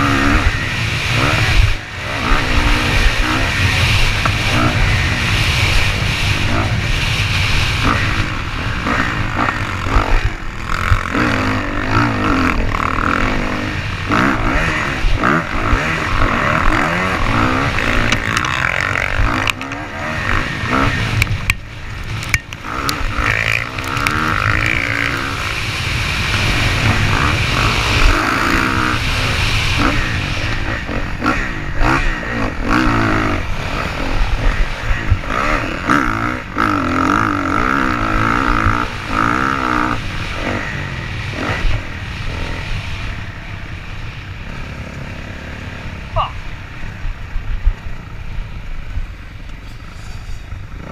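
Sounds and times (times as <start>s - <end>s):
dirt bike engines revving: 0.0s - 50.9s.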